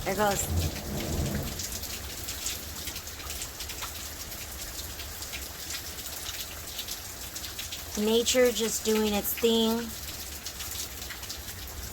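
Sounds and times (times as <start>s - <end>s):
steady rain falling: 0.0s - 11.9s.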